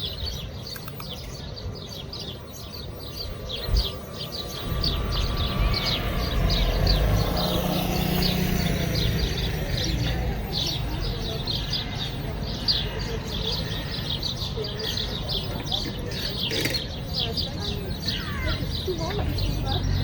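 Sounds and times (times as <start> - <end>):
small birds chirping: 0.0 - 20.0
low rumble: 3.5 - 9.9.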